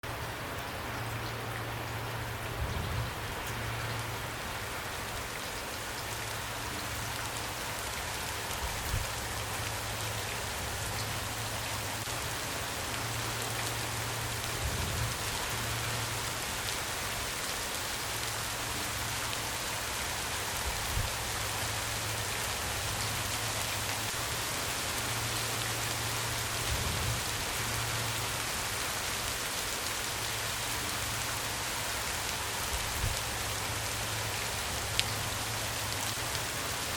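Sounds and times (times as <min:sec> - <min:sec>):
steady rain falling: 0:00.0 - 0:36.9.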